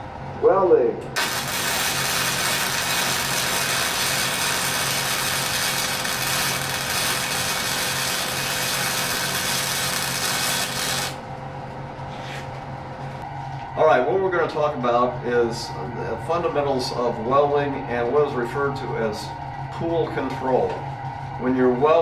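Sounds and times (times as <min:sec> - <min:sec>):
low electrical hum of welder: 0:00.9 - 0:22.0
welding arc crackling hiss: 0:01.2 - 0:11.2.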